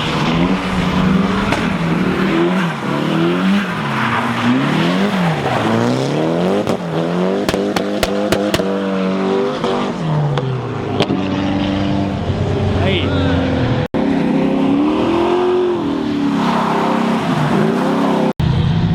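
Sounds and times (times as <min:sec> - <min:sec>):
car engine revving: 0:00.0 - 0:18.9
sharp exhaust pops: 0:06.5 - 0:08.8.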